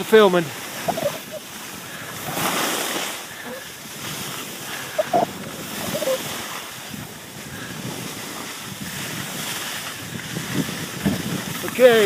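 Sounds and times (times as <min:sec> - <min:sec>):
skis sliding on snow: 0:00.0 - 0:12.0
wind rushing over microphone: 0:00.0 - 0:12.0
brief squeaks: 0:00.8 - 0:01.4, 0:05.0 - 0:06.2.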